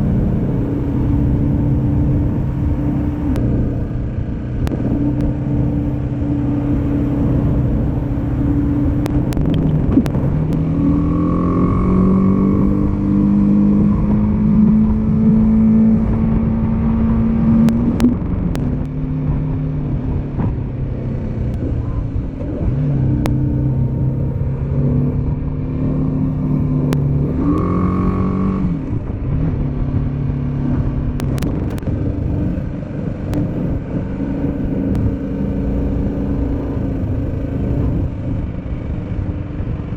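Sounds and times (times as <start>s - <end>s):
motorcycle engine: 0.0s - 39.9s
wind and road noise: 0.0s - 39.9s.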